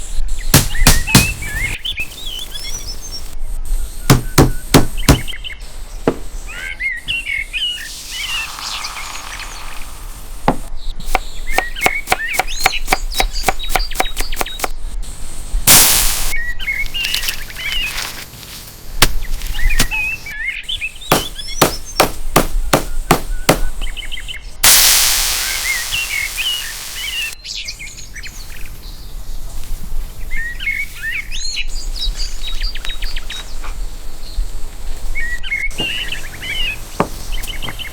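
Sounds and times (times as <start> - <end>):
birds chirping: 0.0 - 15.1, 16.0 - 24.6, 25.4 - 37.9
bursts of hissing noise: 0.0 - 27.4, 28.3 - 37.9
knife chopping on a board: 4.1 - 5.3, 10.5 - 14.7, 21.1 - 23.7.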